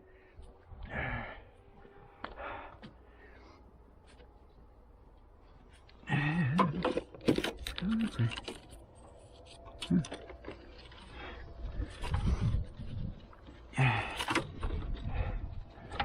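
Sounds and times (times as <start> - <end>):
man grunting and mumbling: 6.0 - 6.9.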